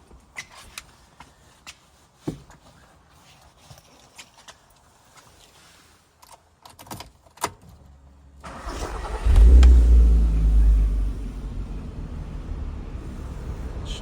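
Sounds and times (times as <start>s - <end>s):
car engine starting and idling: 8.4s - 14.0s.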